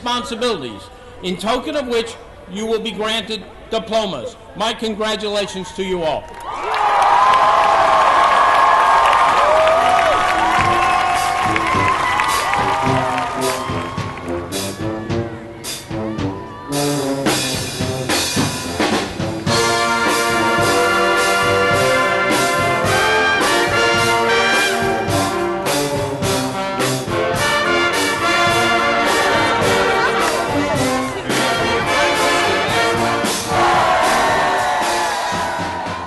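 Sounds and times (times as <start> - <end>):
brass band playing upbeat music: 10.1 - 36.0.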